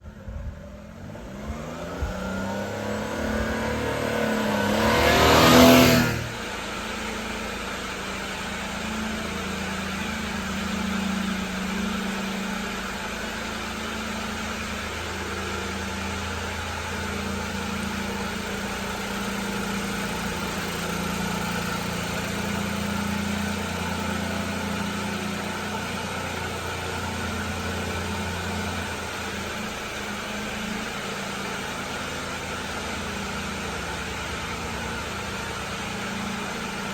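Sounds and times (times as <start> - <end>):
truck engine idling: 0.0 - 36.9.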